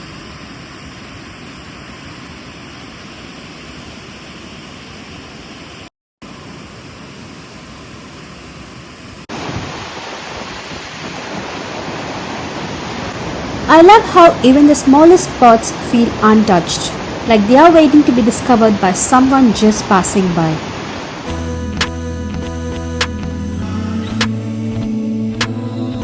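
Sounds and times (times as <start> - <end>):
steady rushing noise: 5.2 - 21.9.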